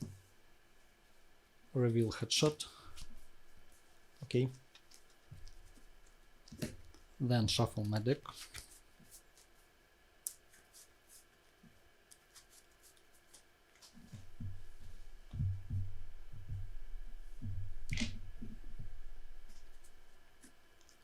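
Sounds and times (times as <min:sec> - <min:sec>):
cards being shuffled: 0:08.3 - 0:09.6, 0:12.1 - 0:14.3.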